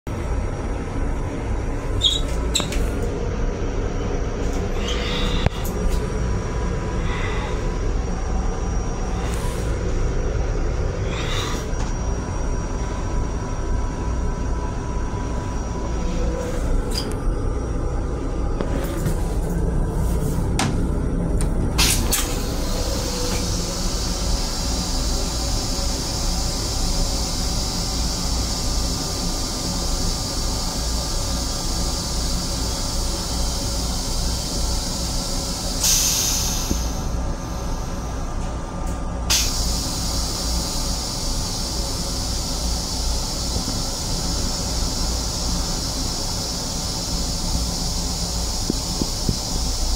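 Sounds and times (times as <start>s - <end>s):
moving train rumble: 0.1s - 49.9s
steady hiss: 39.3s - 49.9s.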